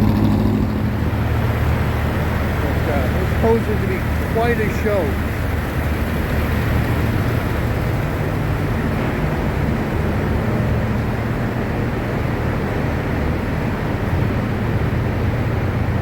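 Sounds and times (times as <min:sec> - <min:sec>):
noisy hiss: 0:01.0 - 0:11.0.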